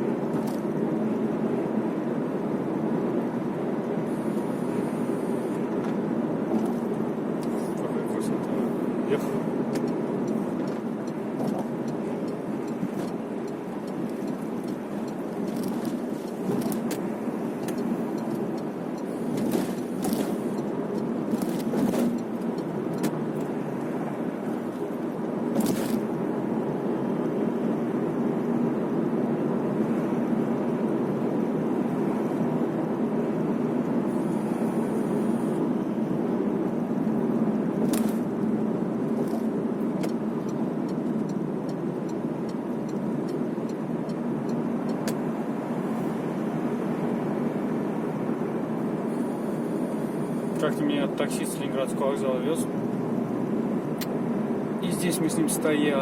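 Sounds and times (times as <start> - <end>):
car cabin rumble: 0.0 - 29.6.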